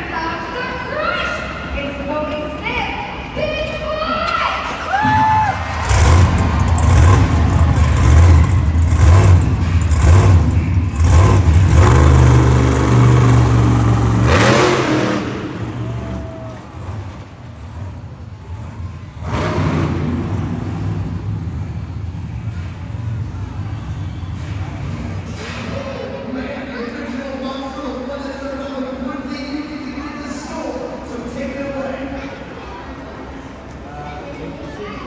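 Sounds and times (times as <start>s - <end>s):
truck engine revving: 4.6s - 25.8s.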